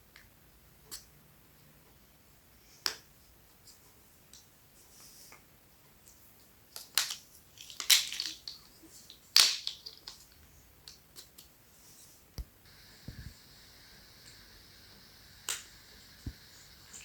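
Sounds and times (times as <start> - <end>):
plastic blocks clicking together: 6.8 - 11.0.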